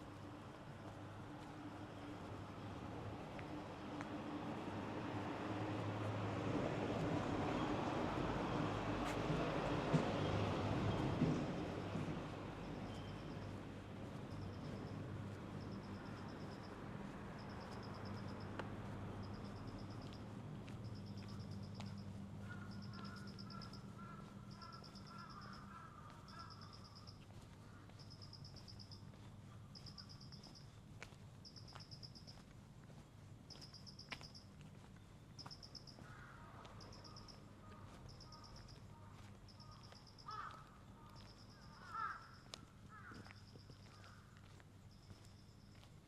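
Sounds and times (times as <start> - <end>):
distant crows cawing: 20.9 - 30.5, 35.3 - 44.6.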